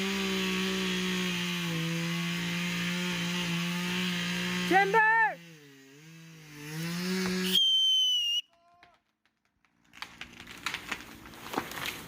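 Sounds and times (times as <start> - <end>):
high whistle: 7.4 - 8.5
crackling and snapping: 8.5 - 12.0.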